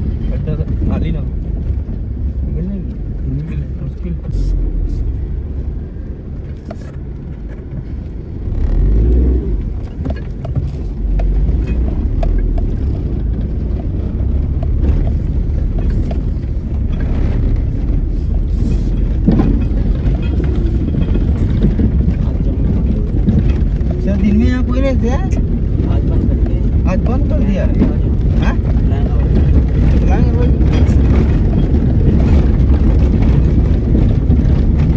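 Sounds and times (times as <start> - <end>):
engine and road rumble: 0.0 - 34.9
knocks and rattles: 9.6 - 34.9.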